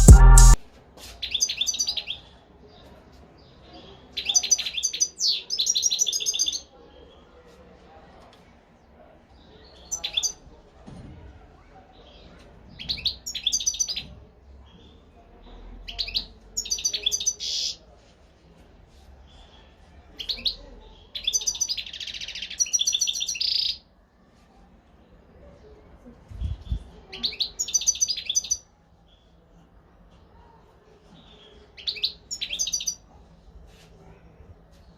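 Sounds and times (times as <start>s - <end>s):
bird twittering and trilling: 31.8s - 33.0s.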